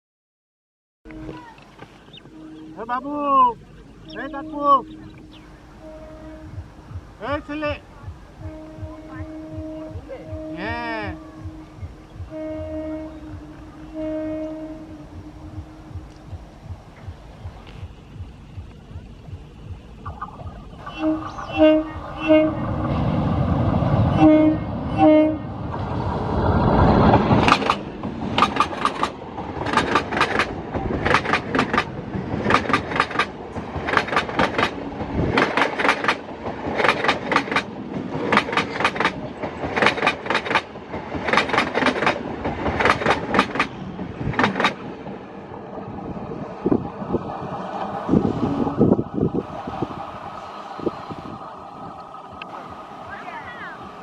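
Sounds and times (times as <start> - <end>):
train horn toots: 1.1 - 17.0, 20.8 - 25.7
train wheels clattering on rails: 25.5 - 50.2.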